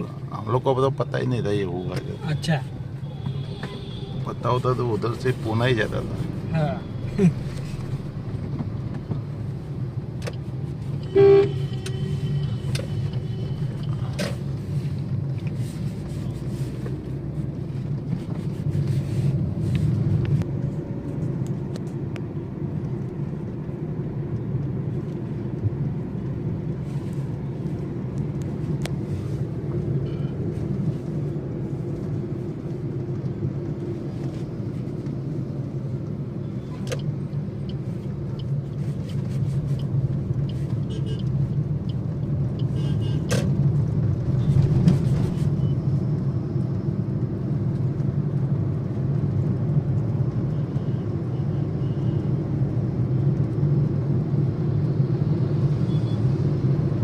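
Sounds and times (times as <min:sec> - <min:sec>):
traffic rumble: 0:00.0 - 0:57.0
short vehicle horn toot: 0:11.0 - 0:12.6.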